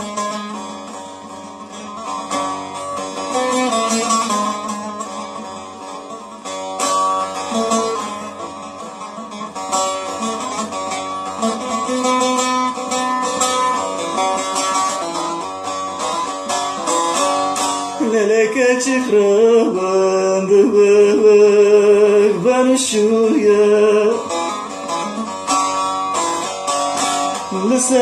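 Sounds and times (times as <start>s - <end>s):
plucked string folk melody: 0.0s - 28.0s
person singing: 18.0s - 25.3s, 27.4s - 28.0s.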